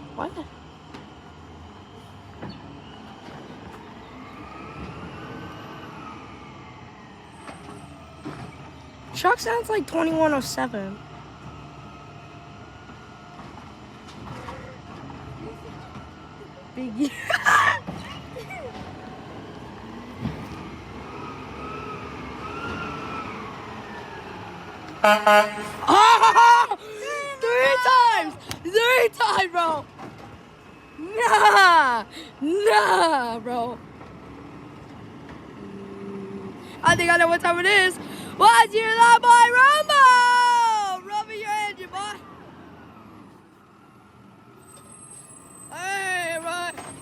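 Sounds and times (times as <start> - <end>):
distant siren wailing: 0.0 - 13.5, 18.7 - 29.8, 38.4 - 47.0
diesel engine rumbling: 0.0 - 47.0
street noise: 0.0 - 47.0.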